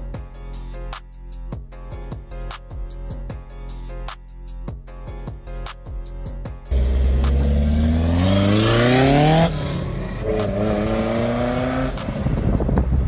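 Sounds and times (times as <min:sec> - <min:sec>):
car engine revving loudly: 0:06.7 - 0:12.3.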